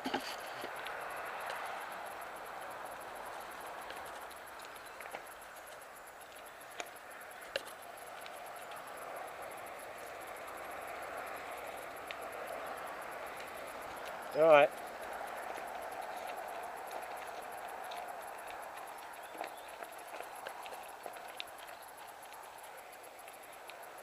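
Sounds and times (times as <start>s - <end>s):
bike knocking over ground: 0.0s - 0.7s
bike tyre noise on dirt: 0.0s - 24.0s.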